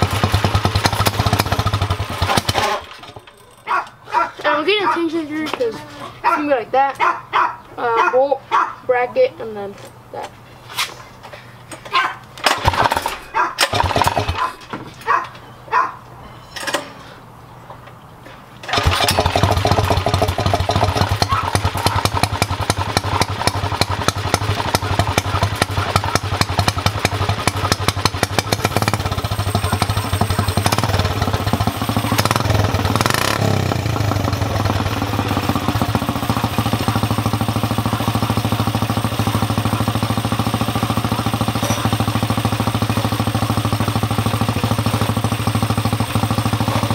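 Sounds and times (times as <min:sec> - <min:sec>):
go-kart engine idling and revving: 0:00.0 - 0:03.4, 0:12.4 - 0:14.7, 0:18.6 - 0:46.9.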